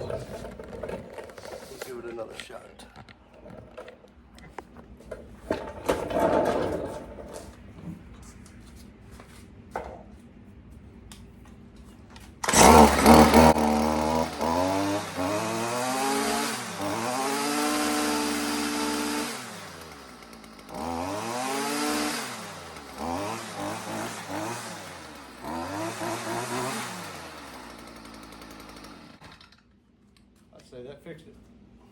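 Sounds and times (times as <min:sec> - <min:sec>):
string trimmer engine revving: 0:12.4 - 0:29.5.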